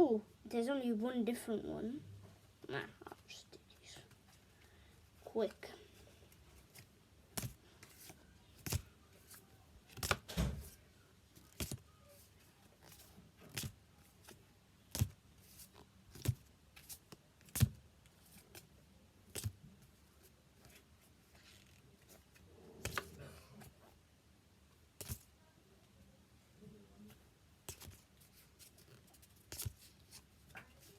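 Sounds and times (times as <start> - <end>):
trading cards snapping: 9.9 - 10.4, 22.8 - 23.2.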